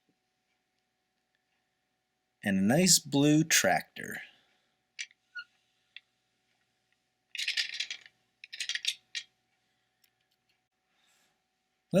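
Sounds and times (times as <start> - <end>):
plastic toy bricks clattering: 7.3 - 9.3.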